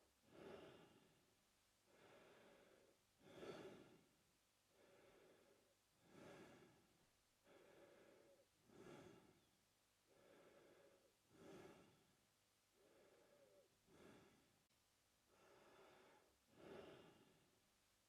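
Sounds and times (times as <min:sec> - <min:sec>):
man breathing through mouth: 0:01.9 - 0:04.0, 0:04.8 - 0:06.8, 0:07.4 - 0:09.5, 0:10.1 - 0:12.1.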